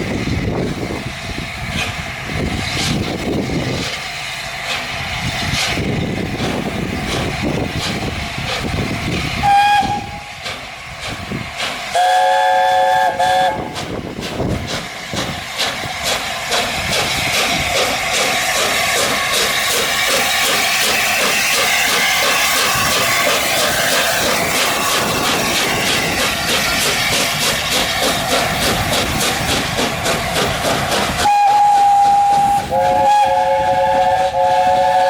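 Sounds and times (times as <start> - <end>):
steam locomotive chime whistle: 9.4 - 10.3, 11.9 - 13.8, 31.2 - 35.0.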